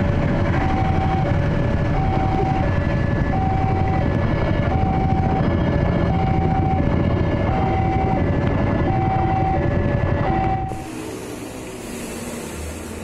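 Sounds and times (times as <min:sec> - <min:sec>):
passing train rumbling: 0:00.0 - 0:13.0
level crossing two-tone alarm: 0:00.6 - 0:10.8.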